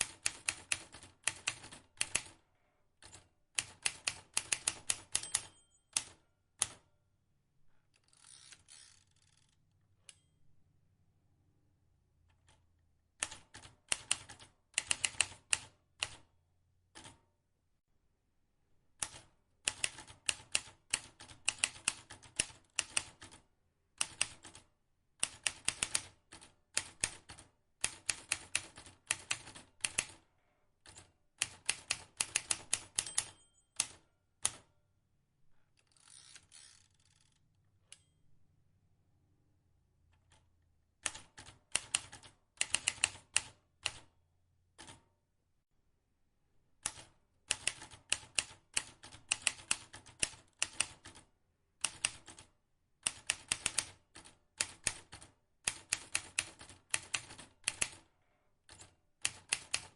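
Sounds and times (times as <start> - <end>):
manual typewriter keystrokes: 0.0 - 2.4, 3.0 - 6.9, 13.2 - 16.2, 19.0 - 23.4, 24.0 - 30.2, 30.8 - 34.7, 41.0 - 44.1, 46.8 - 58.1, 58.7 - 59.9.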